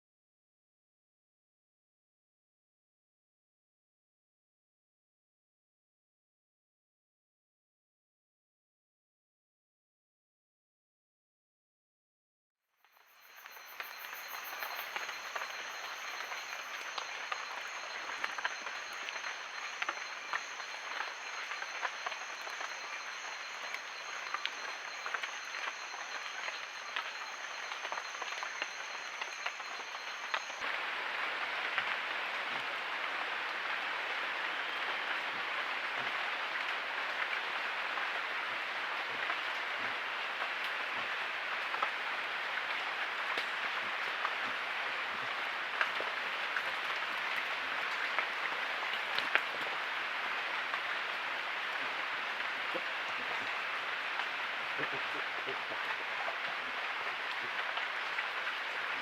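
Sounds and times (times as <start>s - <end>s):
insect drone: 12.8s - 59.0s
forest chorus hiss: 12.9s - 31.5s.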